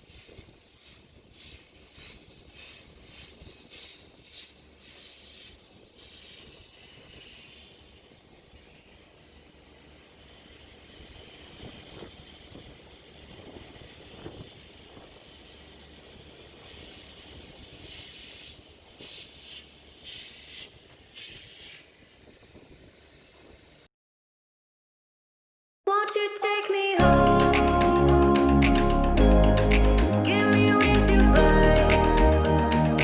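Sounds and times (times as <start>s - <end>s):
hissing rattle: 0.0s - 23.9s.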